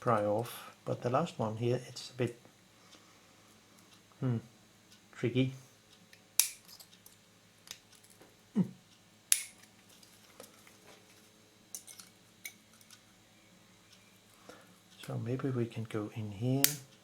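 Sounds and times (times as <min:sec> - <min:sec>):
metal tool clicking on plastic: 0:06.1 - 0:07.1, 0:09.3 - 0:10.0.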